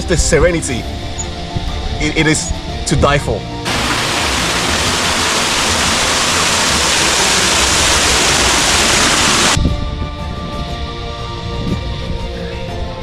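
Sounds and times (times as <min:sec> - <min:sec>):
rush of falling water: 0:03.7 - 0:09.6.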